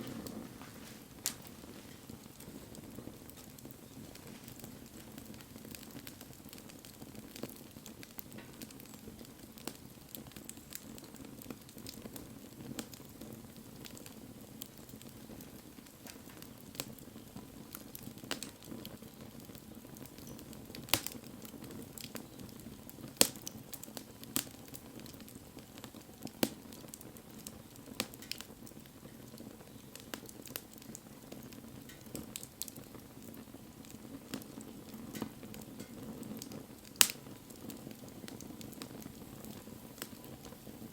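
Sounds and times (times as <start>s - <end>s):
bonfire flames rushing: 0.0s - 40.9s
fire crackling and popping: 0.0s - 40.9s.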